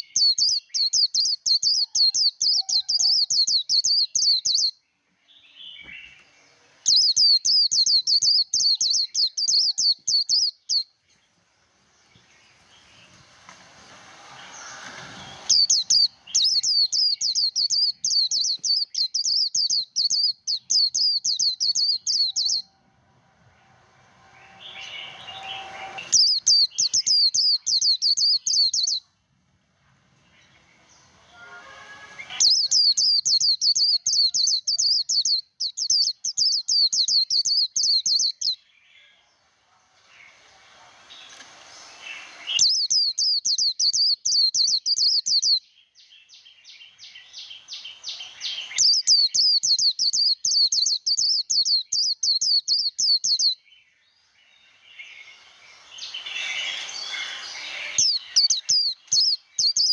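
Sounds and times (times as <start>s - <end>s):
bird singing high-pitched trill: 0.0s - 4.8s, 6.9s - 10.9s, 15.5s - 22.8s, 24.3s - 29.0s, 31.4s - 38.6s, 42.6s - 45.6s, 47.0s - 53.6s, 54.4s - 59.9s.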